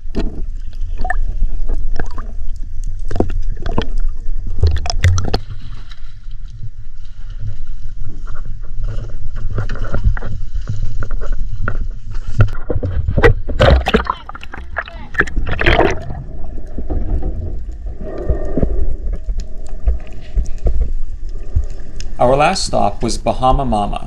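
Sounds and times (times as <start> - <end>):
water splashing and sloshing: 0.0 - 23.8
low rumble: 13.4 - 24.0.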